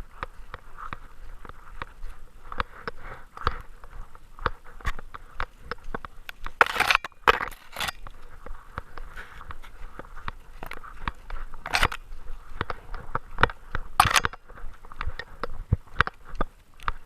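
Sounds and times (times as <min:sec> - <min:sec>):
camera clicking and rattling: 0:00.5 - 0:17.0.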